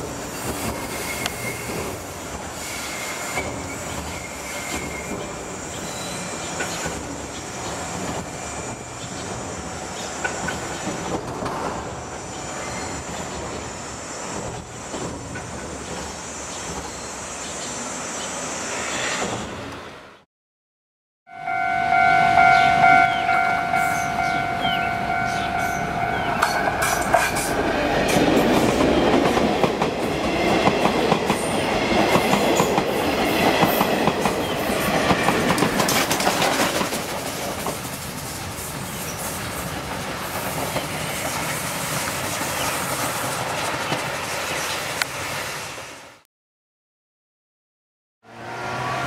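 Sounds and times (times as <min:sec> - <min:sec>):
train horn: 0:21.3 - 0:27.0
train wheels clattering over joints: 0:26.5 - 0:38.2.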